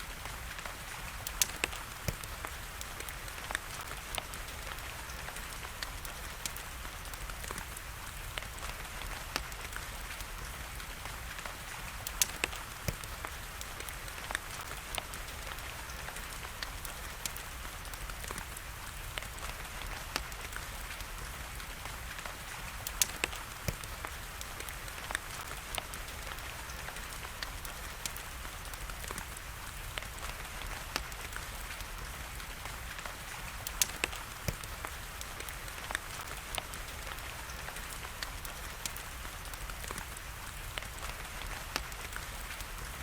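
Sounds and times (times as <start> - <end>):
wood fire crackling and popping: 0.0 - 43.0.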